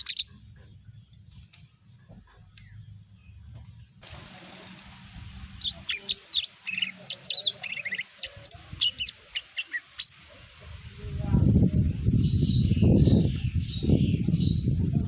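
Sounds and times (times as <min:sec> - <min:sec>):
bird singing chirps and trills: 0:00.0 - 0:01.0, 0:05.6 - 0:10.2, 0:12.1 - 0:14.8.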